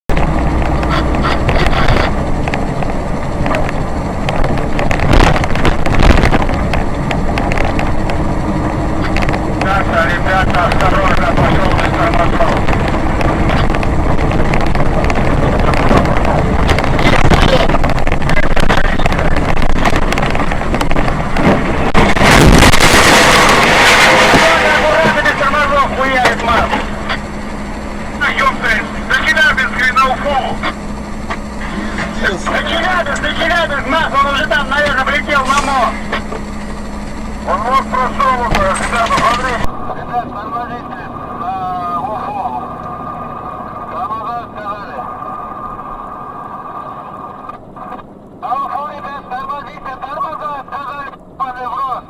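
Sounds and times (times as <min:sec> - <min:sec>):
road noise: 0:00.1 - 0:52.0
vehicle engine drone: 0:00.1 - 0:52.0
wind buffeting microphone: 0:01.4 - 0:09.7, 0:10.3 - 0:24.6.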